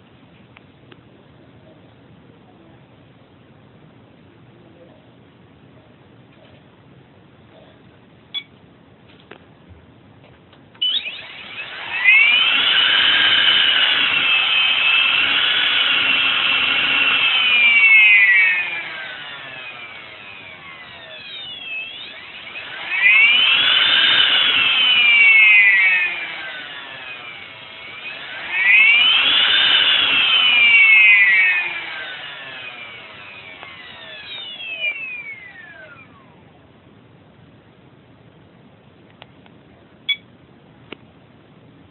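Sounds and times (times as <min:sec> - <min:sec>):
electric motor high-pitched whine: 0:10.8 - 0:36.6.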